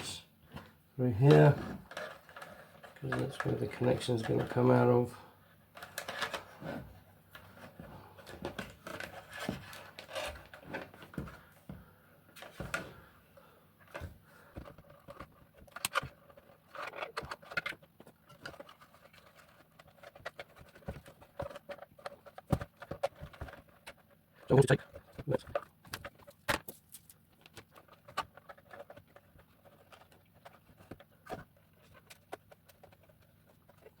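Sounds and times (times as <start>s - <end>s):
plastic handling scrapes and clicks: 0.0s - 11.6s, 12.3s - 34.0s.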